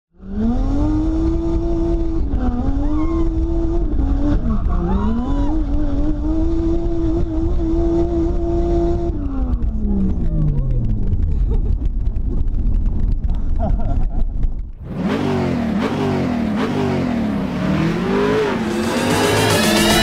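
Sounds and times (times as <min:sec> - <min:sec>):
car engine revving high: 0:00.2 - 0:09.4, 0:14.8 - 0:20.0.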